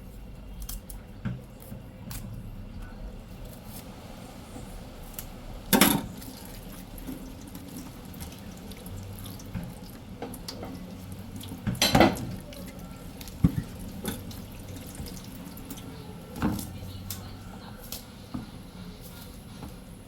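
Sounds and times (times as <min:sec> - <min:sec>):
tap water splashing in sink: 0:05.7 - 0:16.8.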